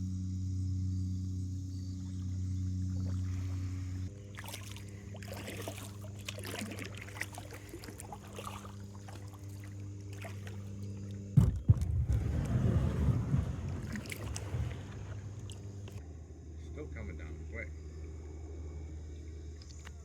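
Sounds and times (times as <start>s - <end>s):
steady low hum: 0.0s - 20.0s
paddle splashing in water: 2.9s - 16.0s.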